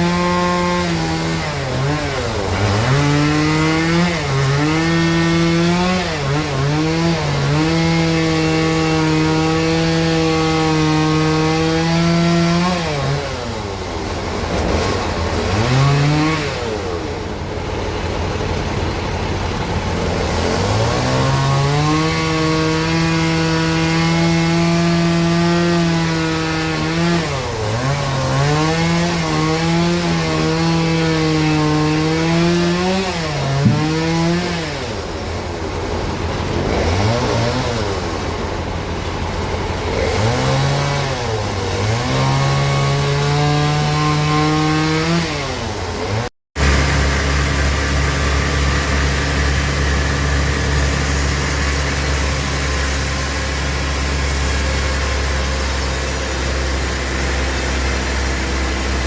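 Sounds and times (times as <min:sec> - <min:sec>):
bandsaw cutting a log: 0:00.0 - 0:59.0.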